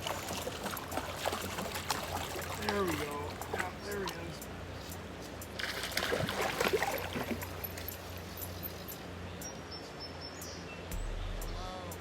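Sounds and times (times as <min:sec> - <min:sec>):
fish splashing in water: 0:00.0 - 0:04.3, 0:05.6 - 0:08.2.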